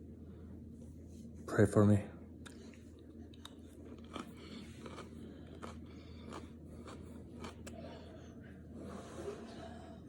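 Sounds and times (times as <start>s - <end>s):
steady low hum: 0.0s - 10.0s
man crunching a raw pepper: 2.4s - 7.8s.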